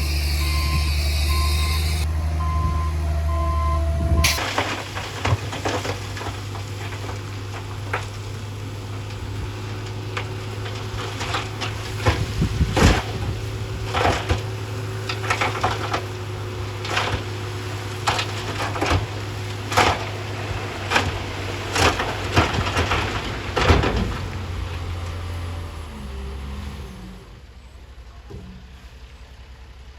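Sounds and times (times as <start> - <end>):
diesel engine humming: 0.0 - 29.9
rocks knocking together: 4.3 - 8.4.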